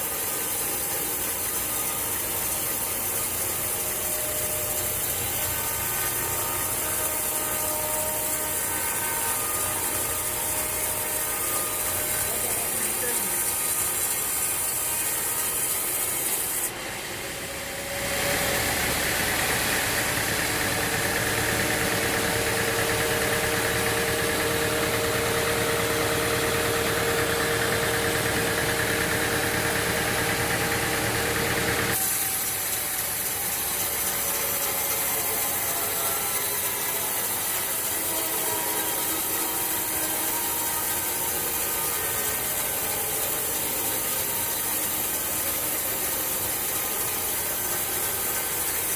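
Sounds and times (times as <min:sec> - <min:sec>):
engine-driven saw running: 0:00.0 - 0:48.9.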